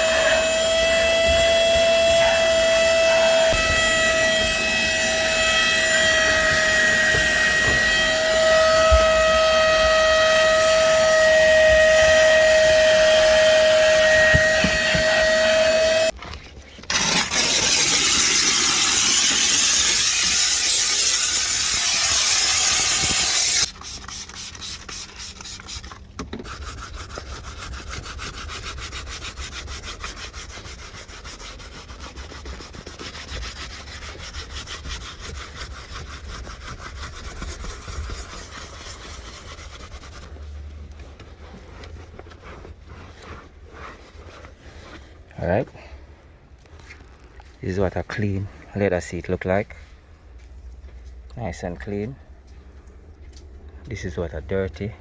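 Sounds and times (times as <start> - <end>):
vacuum motor whining: 0.0 - 16.1, 16.9 - 23.7
brush scrubbing upholstery: 0.0 - 16.2, 16.9 - 45.2
loud even hiss: 16.9 - 23.7.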